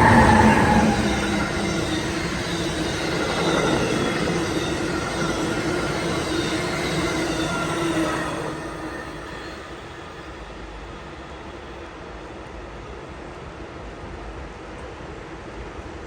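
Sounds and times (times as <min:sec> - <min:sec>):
wheel squeal: 0:00.0 - 0:10.1
passenger train passing: 0:00.0 - 0:15.6.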